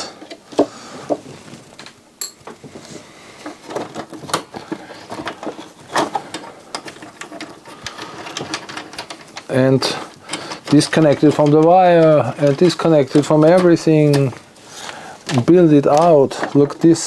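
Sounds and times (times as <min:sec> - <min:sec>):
wire connectors clicking: 0:03.6 - 0:17.0.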